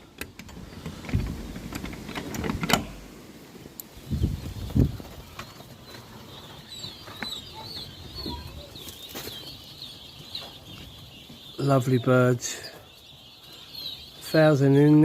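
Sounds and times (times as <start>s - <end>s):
poults cheeping: 4.0s - 15.0s.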